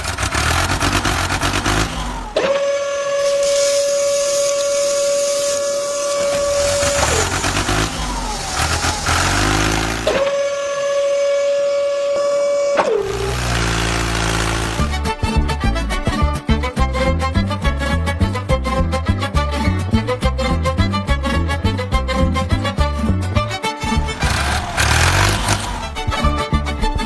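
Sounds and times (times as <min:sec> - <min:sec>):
vehicle engine: 0:00.0 - 0:10.8, 0:12.8 - 0:15.6, 0:23.8 - 0:26.8
long horn blasts: 0:02.4 - 0:15.0.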